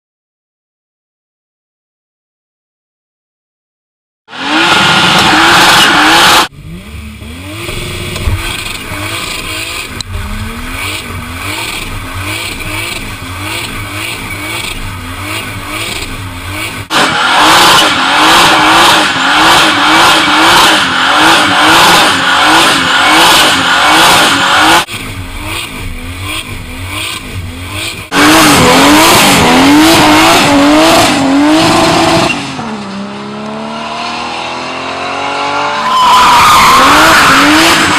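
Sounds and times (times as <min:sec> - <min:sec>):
car engine revving: 0:04.3 - 0:37.9
tyre squeal: 0:07.7 - 0:16.6, 0:35.8 - 0:37.9.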